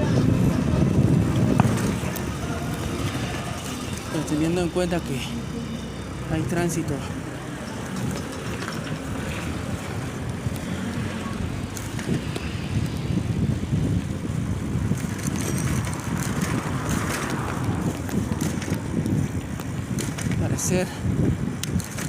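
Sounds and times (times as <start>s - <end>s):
wind buffeting microphone: 0.0s - 5.1s, 6.0s - 22.0s
bicycle road rumble: 0.0s - 22.0s
small clicks and rattles: 7.8s - 9.4s, 14.9s - 20.4s, 21.6s - 22.0s.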